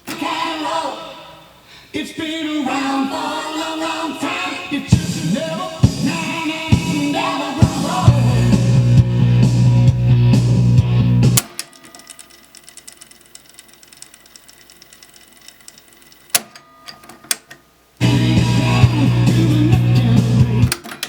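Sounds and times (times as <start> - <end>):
rock music from cassette: 4.9 - 12.0, 18.0 - 21.0
faint mechanism ticking: 11.4 - 17.6
tape deck key clicks: 11.4 - 17.6.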